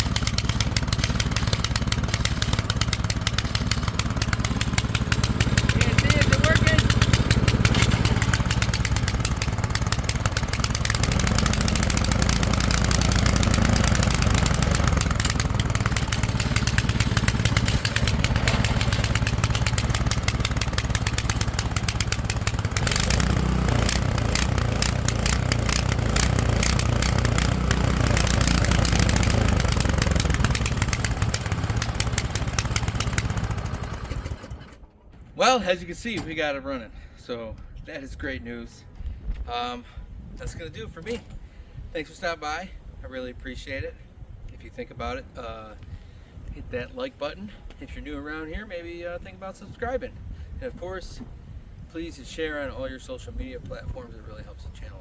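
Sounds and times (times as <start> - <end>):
snowblower engine running: 0.0 - 34.9.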